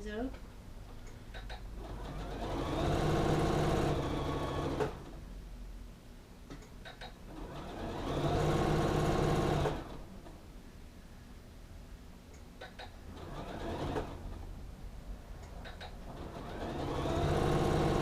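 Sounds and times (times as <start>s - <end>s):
sewing machine stitching: 1.8s - 5.1s, 7.3s - 10.0s, 13.1s - 14.3s, 15.6s - 18.0s.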